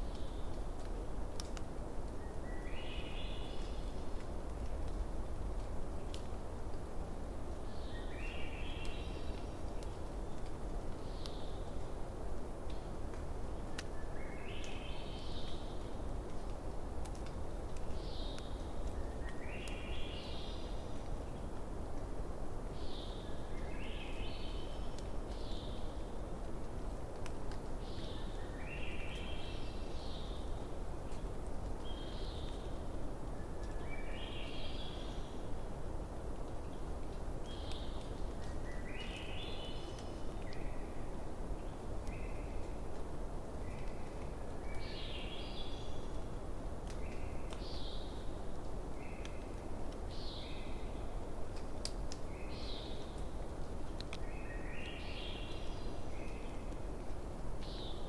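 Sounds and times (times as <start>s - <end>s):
bonfire burning: 0.0s - 2.5s, 15.4s - 19.4s, 24.7s - 28.1s, 51.0s - 52.3s, 53.0s - 54.3s.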